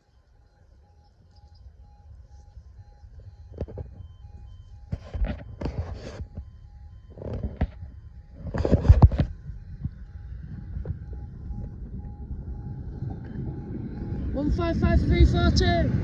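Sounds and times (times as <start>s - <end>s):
warning beeper beeping: 0.0s - 16.0s
rumbling noise bursts: 7.0s - 16.0s.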